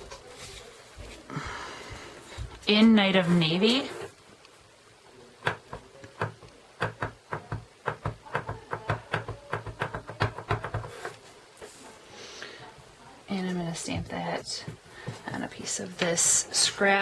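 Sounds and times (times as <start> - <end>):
stamp tapping on ink pad: 5.4 - 11.1.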